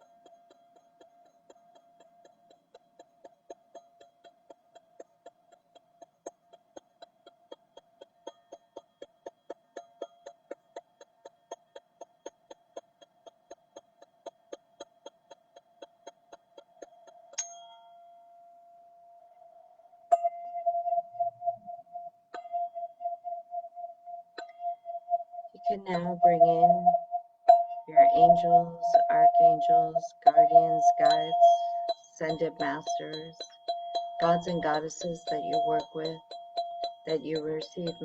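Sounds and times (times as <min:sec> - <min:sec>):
tube tapped with ringing tone: 0:16.2 - 0:18.3, 0:20.1 - 0:38.0.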